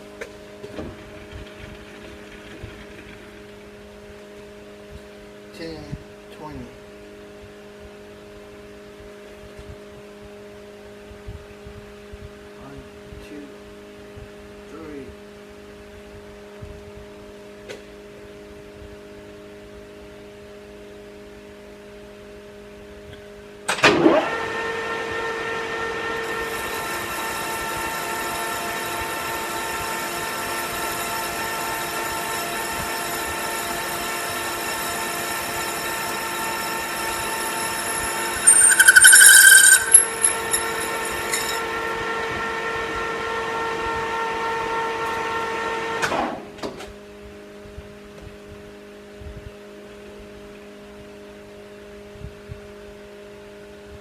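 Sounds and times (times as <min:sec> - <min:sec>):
metal lathe whining: 0:26.2 - 0:42.2
tool screeching on steel: 0:38.0 - 0:41.7.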